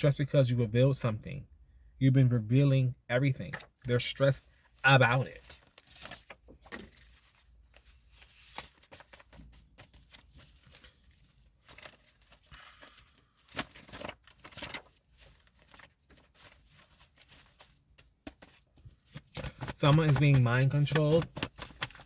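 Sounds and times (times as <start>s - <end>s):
handling clicks and rustling: 5.3s - 10.9s, 17.2s - 22.0s.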